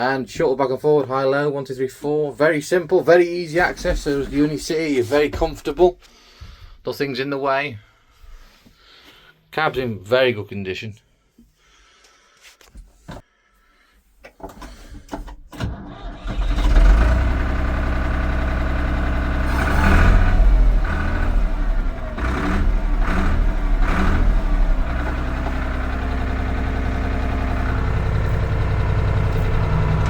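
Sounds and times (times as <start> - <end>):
diesel tractor engine starting: 14.6 - 30.0
engine revving: 16.0 - 30.0
engine idling: 16.4 - 30.0.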